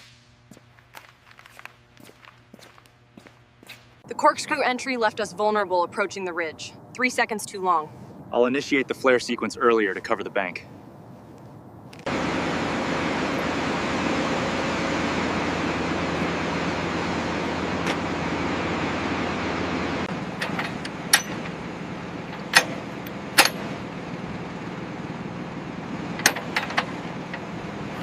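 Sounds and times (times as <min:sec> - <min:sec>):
rushing mechanical noise: 0:12.0 - 0:28.0
sharp metallic clicks: 0:22.3 - 0:23.8.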